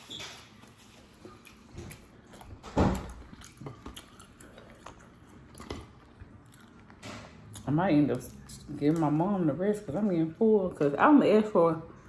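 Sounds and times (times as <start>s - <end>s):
chewing and mouth smacking: 0.4s - 10.0s.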